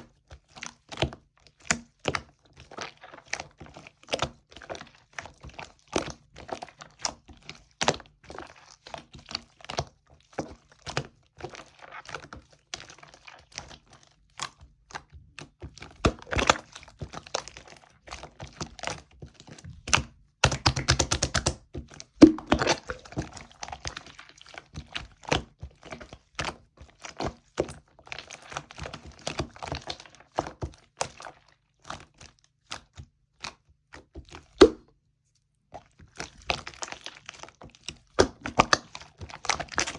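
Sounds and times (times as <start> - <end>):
slime squeezed by hand popping: 22.2 - 23.1, 34.6 - 34.9.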